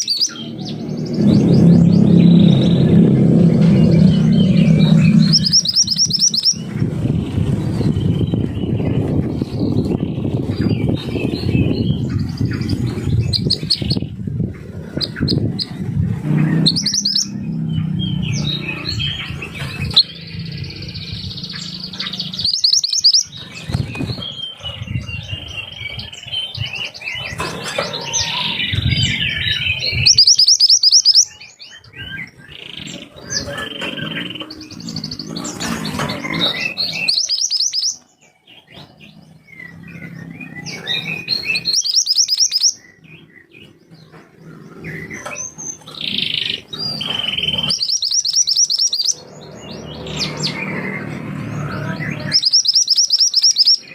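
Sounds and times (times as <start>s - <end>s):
songbird chirping and trilling: 0.0s - 53.9s
steady low rumble: 0.4s - 22.5s.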